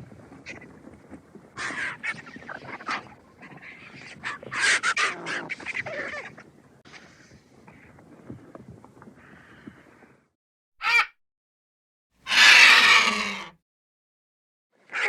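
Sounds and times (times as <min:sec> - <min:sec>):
vulture calls: 0:10.8 - 0:11.1, 0:12.3 - 0:13.5.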